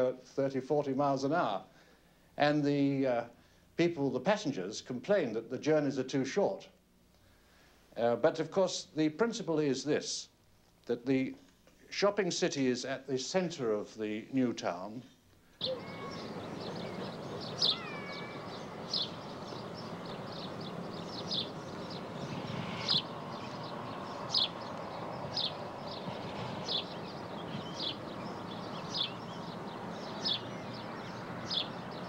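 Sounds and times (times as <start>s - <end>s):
background hiss: 0.0s - 32.0s
gliding whistled bird notes: 15.6s - 32.0s
small bird chirping: 15.6s - 32.0s.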